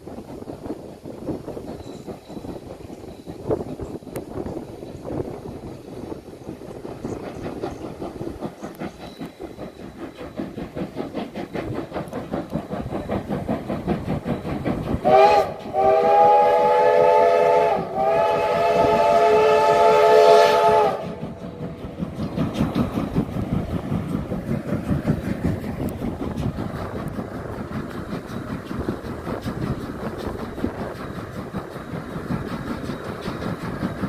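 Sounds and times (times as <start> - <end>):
steam locomotive exhaust chuffs: 0.0 - 34.0
steam whistle: 15.0 - 21.3.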